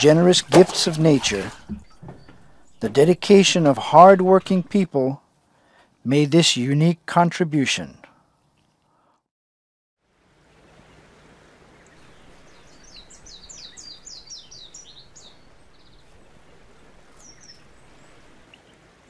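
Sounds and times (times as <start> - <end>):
steady background hiss: 2.6 - 8.2, 10.0 - 19.0
small bird chirping: 11.8 - 18.7.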